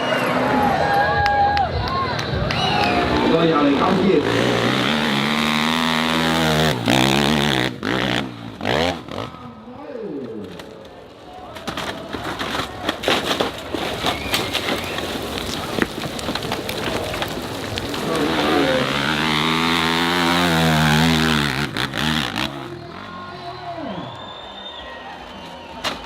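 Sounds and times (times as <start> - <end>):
dirt bike engine revving: 2.6 - 9.7, 17.9 - 24.1.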